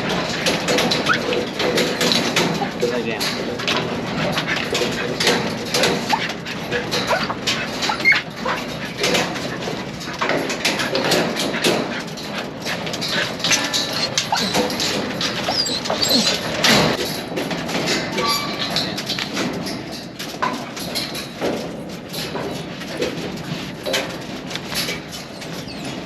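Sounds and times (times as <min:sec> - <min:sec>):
dogs whimpering: 0:00.4 - 0:02.8, 0:04.3 - 0:17.0, 0:25.2 - 0:26.0.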